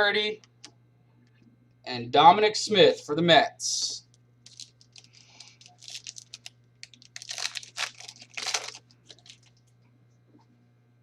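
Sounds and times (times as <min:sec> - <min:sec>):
faint electrical hum: 0:00.0 - 0:11.0
trading cards crinkling: 0:04.4 - 0:09.7.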